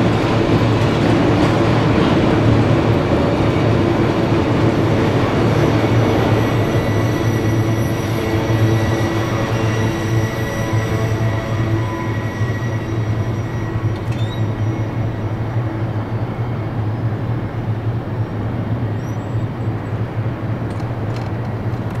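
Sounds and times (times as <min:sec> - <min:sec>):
freight train rumbling: 0:00.0 - 0:22.0
crossing bell ringing: 0:05.3 - 0:16.2.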